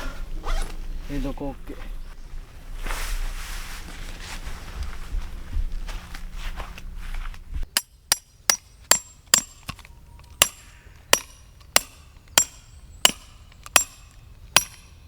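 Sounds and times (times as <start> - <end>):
rustling handling noise: 0.0 - 7.7
hammer striking tent peg: 7.7 - 9.8, 10.4 - 15.0.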